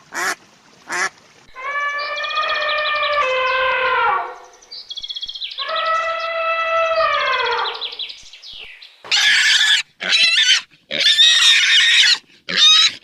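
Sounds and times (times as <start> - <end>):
pig squealing: 9.1 - 13.0.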